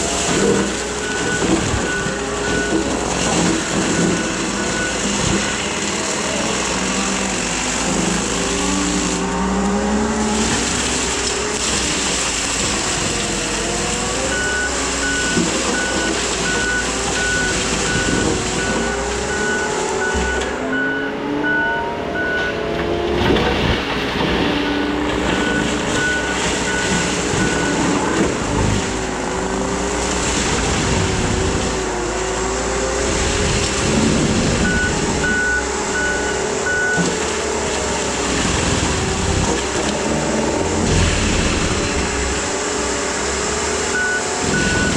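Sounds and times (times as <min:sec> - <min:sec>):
reversing alarm beeping: 0:00.0 - 0:06.6, 0:13.5 - 0:23.0, 0:24.6 - 0:28.6, 0:34.5 - 0:37.2, 0:43.9 - 0:44.9
skid steer engine running: 0:00.0 - 0:44.9.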